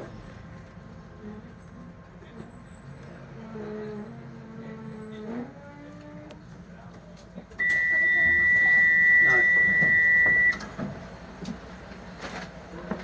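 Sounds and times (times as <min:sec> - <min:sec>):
high electronic warning tone: 0:07.6 - 0:10.6.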